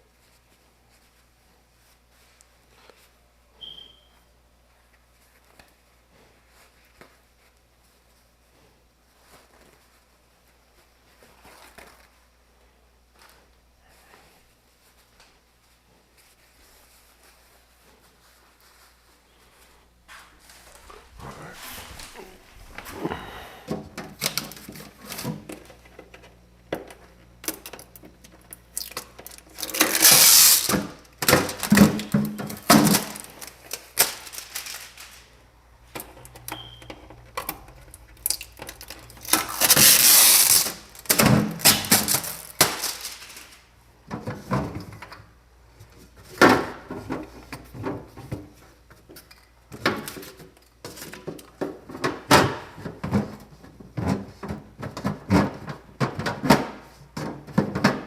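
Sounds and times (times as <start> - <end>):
drawn-out rustling or scraping: 13.2 - 23.2, 33.2 - 35.4
knocks and clatter of handling: 23.7 - 35.2, 35.9 - 58.0.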